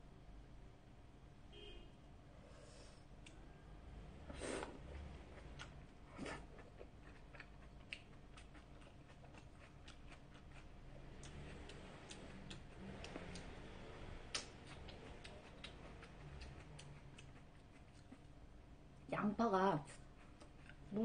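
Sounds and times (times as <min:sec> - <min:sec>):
person chewing food: 0:04.3 - 0:18.6, 0:20.0 - 0:20.9
mouth clicks and smacks: 0:14.3 - 0:18.2.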